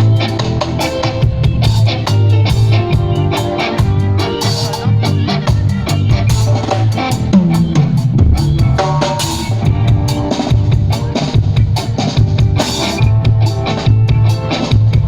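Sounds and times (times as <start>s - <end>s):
bass line: 0.0s - 15.0s
live band playing: 0.0s - 15.0s
drum kit kick and snare: 5.5s - 15.0s.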